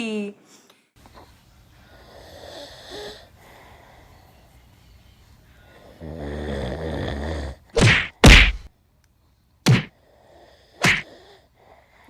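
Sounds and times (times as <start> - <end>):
person snoring: 5.7 - 7.7.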